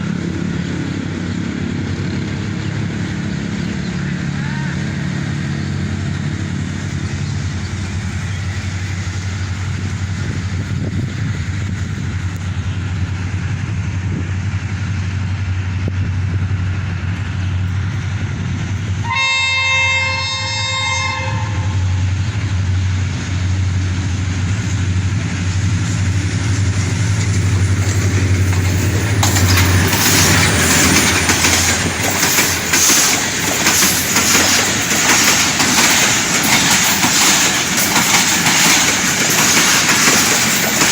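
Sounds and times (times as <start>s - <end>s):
diesel locomotive drone: 0.0s - 40.9s
train horn chord: 19.0s - 22.1s
train wheels clattering on rails: 22.0s - 40.9s.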